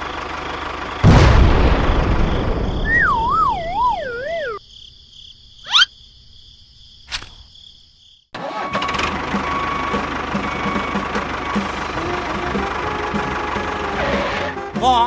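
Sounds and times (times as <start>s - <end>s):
tractor engine running: 0.0s - 4.5s, 8.4s - 14.8s
falling wobbling whistle: 2.8s - 4.6s
sharp click: 7.1s - 7.4s.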